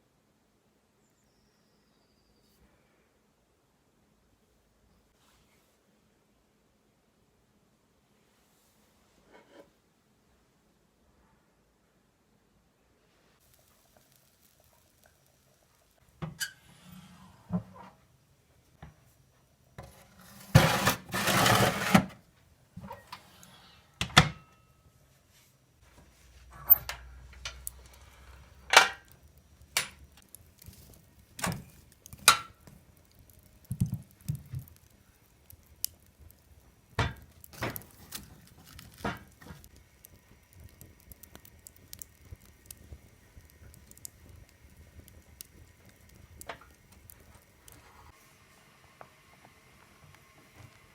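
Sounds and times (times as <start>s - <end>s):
noisy scrape: 19.8s - 22.2s.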